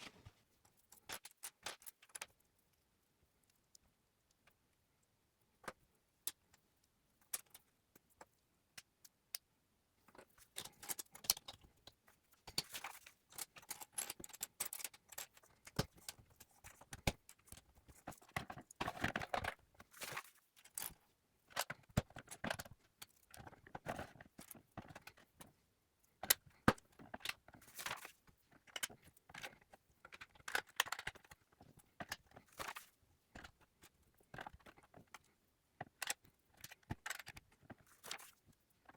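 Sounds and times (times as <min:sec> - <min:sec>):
rustling: 0:00.0 - 0:00.4.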